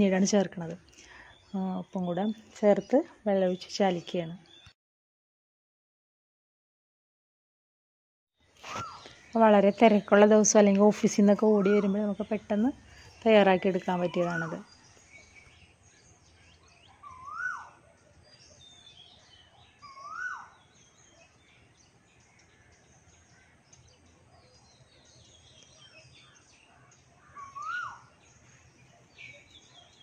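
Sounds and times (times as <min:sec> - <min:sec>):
small birds chirping faintly: 0:08.4 - 0:30.0
bird whistled call: 0:16.9 - 0:17.8, 0:19.8 - 0:20.6, 0:27.3 - 0:28.1.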